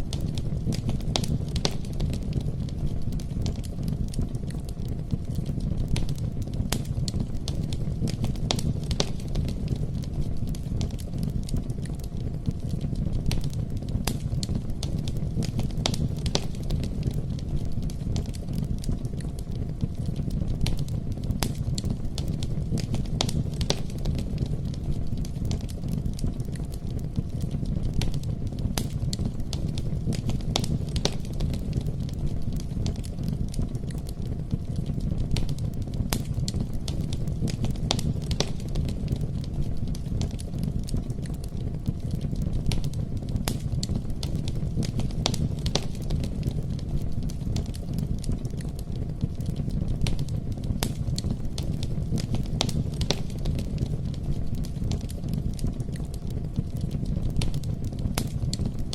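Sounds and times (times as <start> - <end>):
campfire crackling: 0.0 - 58.9.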